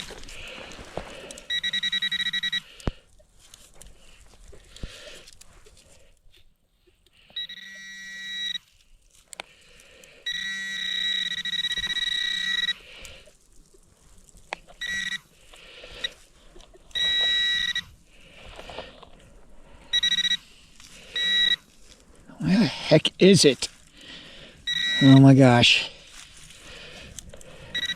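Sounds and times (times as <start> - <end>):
pinpointer electronic tone: 1.4 - 2.7, 7.4 - 8.7, 10.3 - 12.8, 14.7 - 15.3, 16.9 - 18.0, 19.9 - 20.4, 21.1 - 21.7, 24.7 - 25.4.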